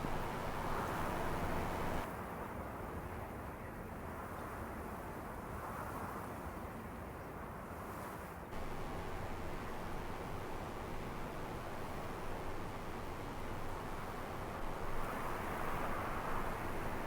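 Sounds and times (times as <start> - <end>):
blizzard wind and driving snow: 0.0 - 2.0, 8.6 - 17.0.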